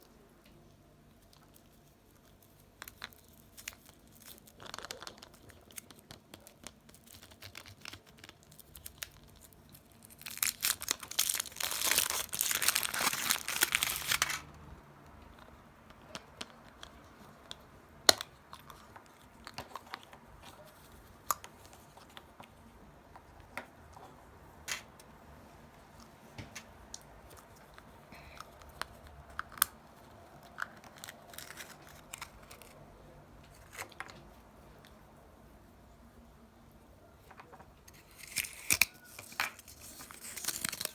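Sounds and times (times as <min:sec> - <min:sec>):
foil wrapper crinkling and tearing: 0:01.3 - 0:14.5, 0:30.4 - 0:32.8, 0:37.9 - 0:40.9.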